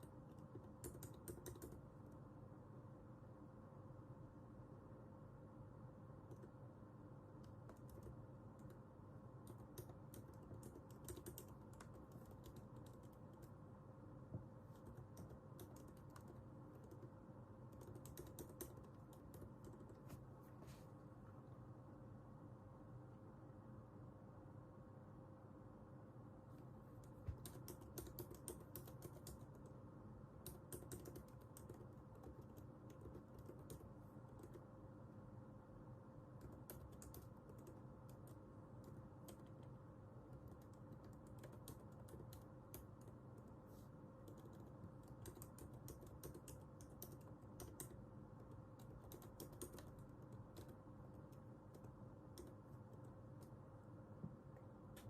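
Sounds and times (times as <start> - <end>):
faint keyboard typing: 0.0 - 2.3, 6.1 - 20.6, 26.5 - 34.9, 36.3 - 55.0.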